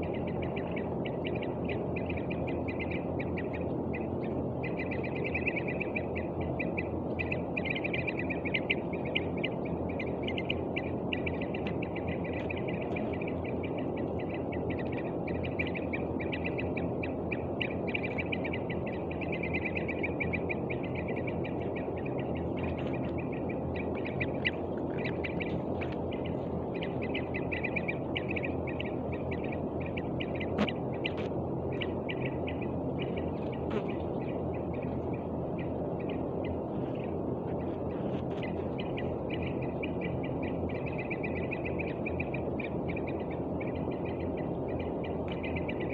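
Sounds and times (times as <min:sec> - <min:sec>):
young bird calling rapidly: 0:19.3 - 0:34.1.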